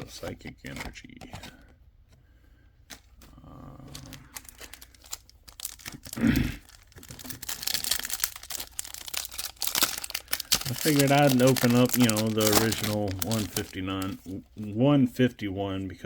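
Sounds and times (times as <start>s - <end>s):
foil wrapper crinkling and tearing: 4.0s - 14.4s.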